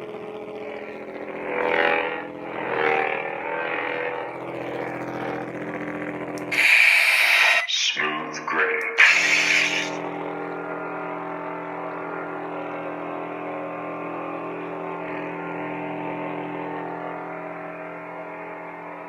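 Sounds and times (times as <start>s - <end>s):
lightsaber electric hum: 0.0s - 19.0s
lightsaber hissing burst: 6.5s - 10.0s.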